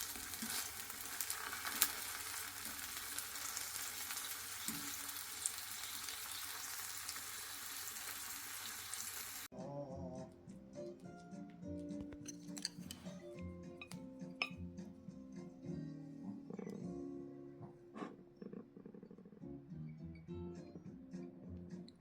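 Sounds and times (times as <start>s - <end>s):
food sizzling in frying pan: 0.0s - 9.5s
music: 9.5s - 22.0s.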